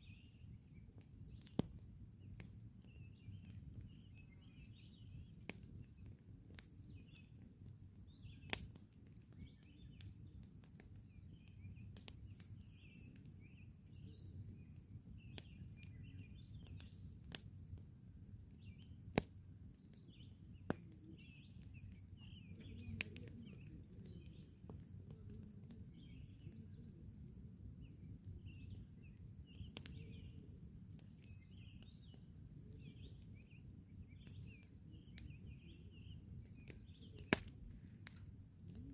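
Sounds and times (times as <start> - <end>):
campfire crackling: 0.0 - 38.9
small birds chirping: 0.0 - 38.9.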